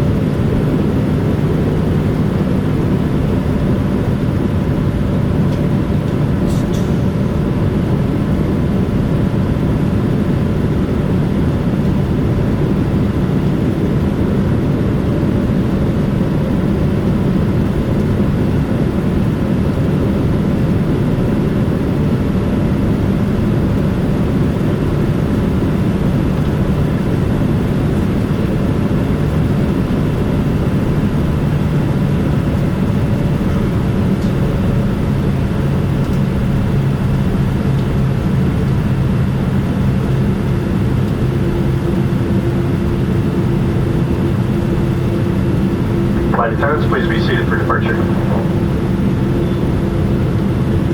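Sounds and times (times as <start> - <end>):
aircraft cabin rumble: 0.0 - 50.9
faint steady hum: 23.3 - 50.9.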